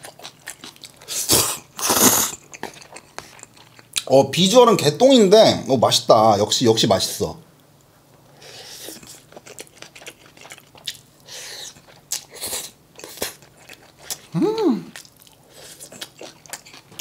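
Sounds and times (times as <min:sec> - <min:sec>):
person chewing food: 0:00.0 - 0:04.1, 0:08.4 - 0:17.0
person humming: 0:14.3 - 0:15.0.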